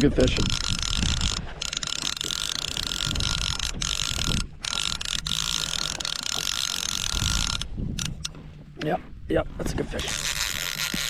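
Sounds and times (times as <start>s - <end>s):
fishing reel ratcheting: 0.0s - 8.4s, 10.0s - 11.0s.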